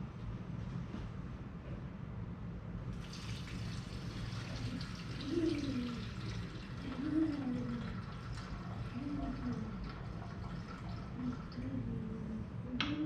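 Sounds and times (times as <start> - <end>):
gasoline pouring into tank: 3.0 - 11.6
can gurgling: 3.0 - 11.9.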